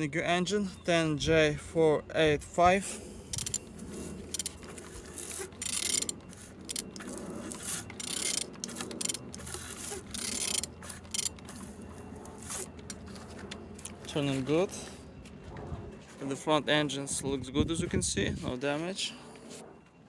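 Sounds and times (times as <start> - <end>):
mechanical clicks and rattles: 3.3 - 11.6
engine turned over by hand: 4.2 - 11.9.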